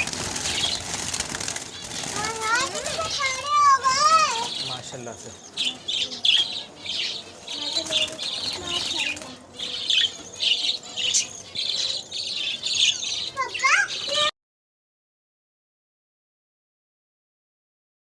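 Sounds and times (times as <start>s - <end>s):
budgerigars chirping: 0.0s - 14.3s.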